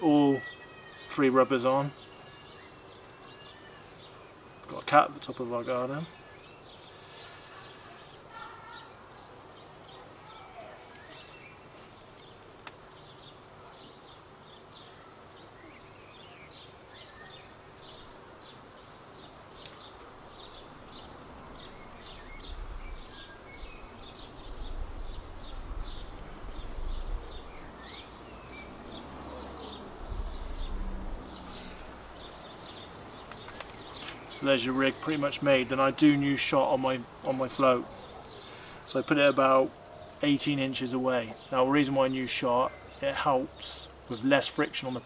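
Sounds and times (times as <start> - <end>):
small birds chirping: 0.0 - 45.0
low rumble: 29.5 - 32.2.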